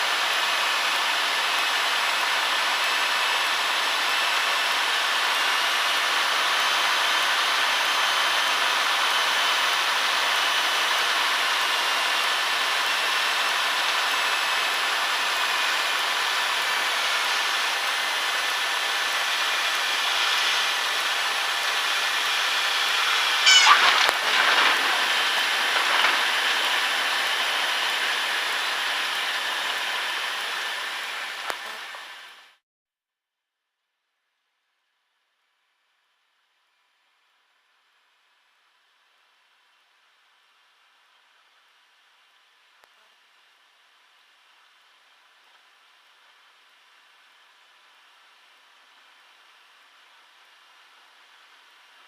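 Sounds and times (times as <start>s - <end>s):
aircraft engine drone: 16.6s - 32.4s
tyre squeal: 22.9s - 26.8s.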